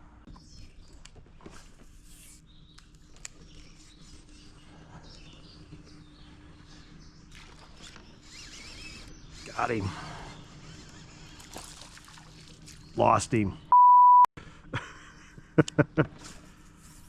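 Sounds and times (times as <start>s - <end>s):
small birds chirping: 0.2s - 13.8s.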